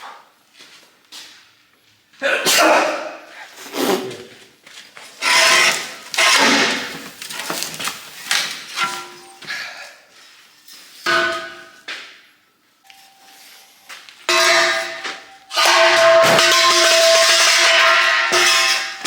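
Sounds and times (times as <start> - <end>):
hammer striking steel tubes: 11.0 - 12.2, 14.3 - 19.0.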